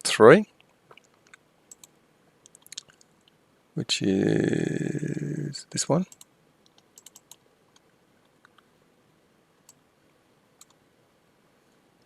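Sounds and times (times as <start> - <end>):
mouse and keyboard clicks: 0.9 - 3.1, 6.1 - 8.7.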